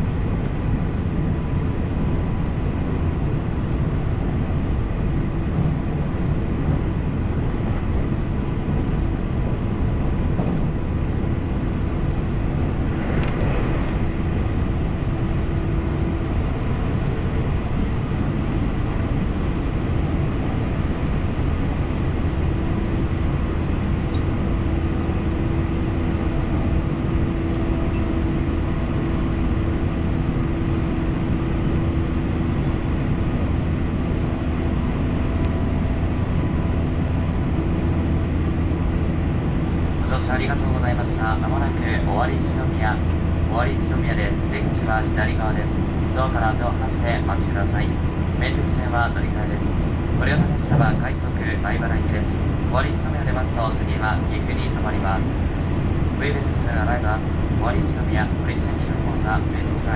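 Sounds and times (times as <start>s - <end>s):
wheels rumbling on rail: 0.0s - 59.9s.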